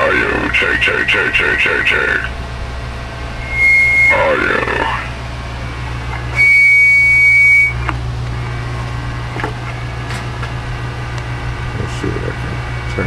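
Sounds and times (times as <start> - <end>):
low electrical hum: 0.0 - 13.0
high whistle-like tone with hiss: 3.4 - 5.1, 6.3 - 7.9.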